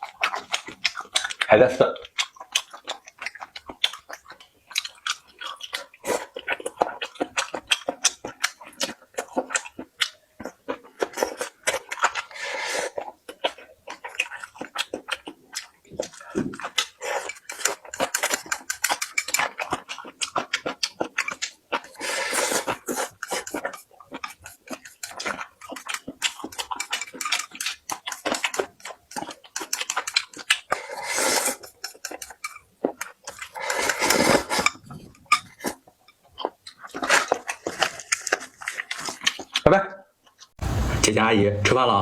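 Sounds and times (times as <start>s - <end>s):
chewing and crunching food: 0.0s - 40.6s
utensils clicking against dishes: 17.1s - 19.7s, 23.2s - 30.4s, 31.6s - 32.6s.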